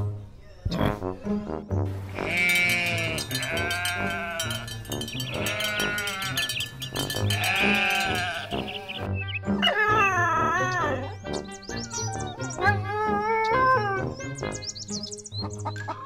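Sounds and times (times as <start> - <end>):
background music with steady beat: 0.0 - 16.0
sheep bleating: 2.1 - 11.0.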